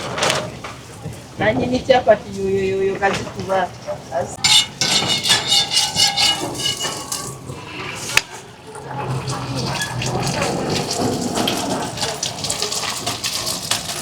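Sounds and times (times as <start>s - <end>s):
metal utensils clinking on cookware: 4.4s - 7.7s
food sizzling on hot pan: 9.5s - 14.0s.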